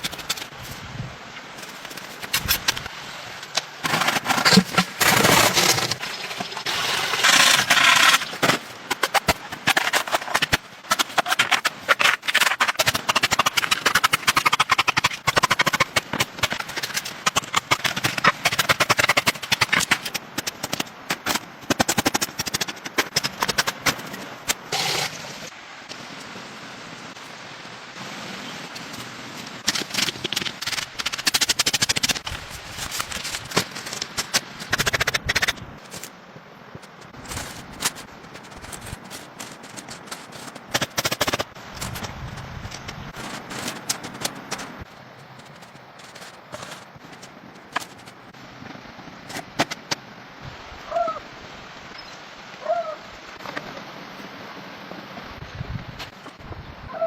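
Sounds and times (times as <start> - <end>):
scraping: 3.8 - 25.2, 36.7 - 48.4.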